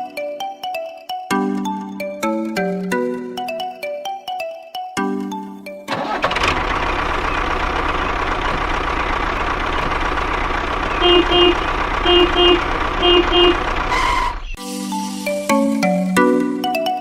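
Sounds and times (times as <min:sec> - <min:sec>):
tractor engine rumbling: 0:05.9 - 0:14.6.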